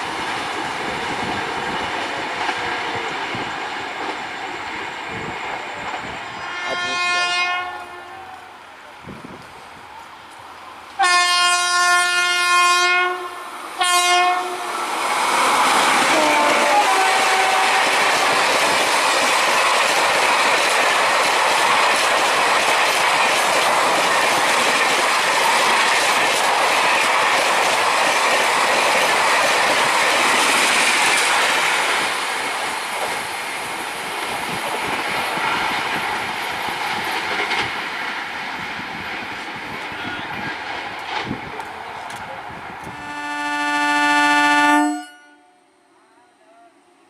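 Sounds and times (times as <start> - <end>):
train wheels clattering on track: 0.0 - 6.3, 14.9 - 43.0
train horn falling in pitch: 6.3 - 8.5, 11.0 - 14.7, 16.1 - 17.9, 42.9 - 45.8.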